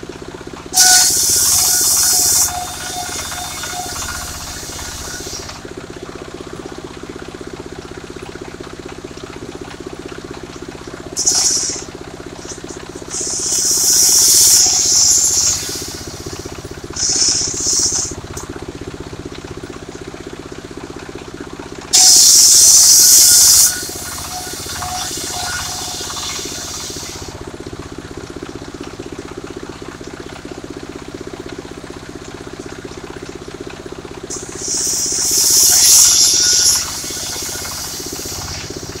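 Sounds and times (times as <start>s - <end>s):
sawmill engine running: 0.0s - 39.0s
saw blade ripping timber hiss: 11.2s - 11.9s, 17.0s - 18.1s.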